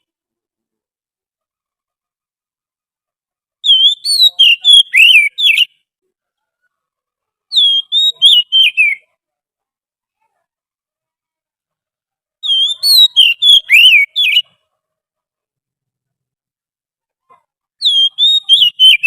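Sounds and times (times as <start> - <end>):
bird whistled song: 3.6 - 5.8, 7.5 - 9.1, 12.4 - 14.5, 17.8 - 19.0.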